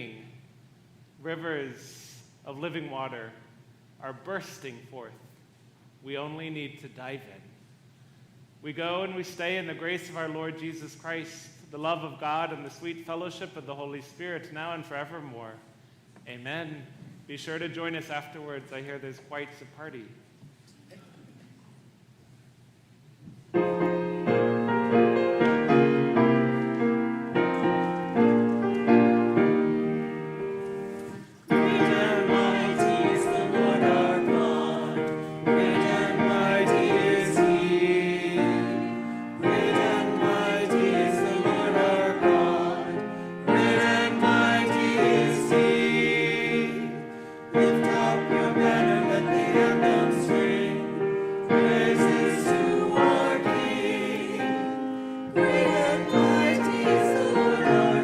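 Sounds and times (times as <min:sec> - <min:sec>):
piano: 0:23.2 - 0:58.0
choir singing: 0:31.4 - 0:58.0.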